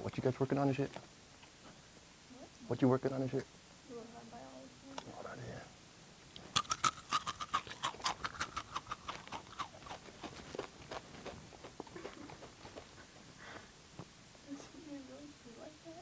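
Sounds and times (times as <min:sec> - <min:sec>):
crunching tortilla chips: 0:06.4 - 0:12.4.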